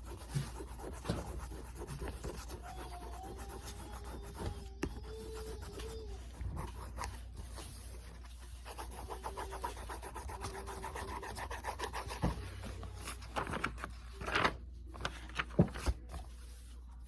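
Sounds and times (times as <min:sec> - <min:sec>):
pencil scribbling on paper: 0:00.0 - 0:12.5.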